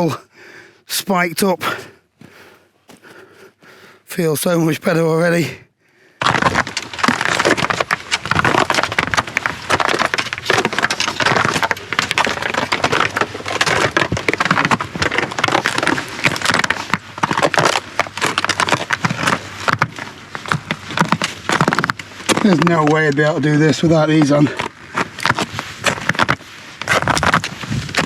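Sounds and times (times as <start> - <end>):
footsteps crunching on icy snow: 0.9 - 5.5, 23.9 - 28.0.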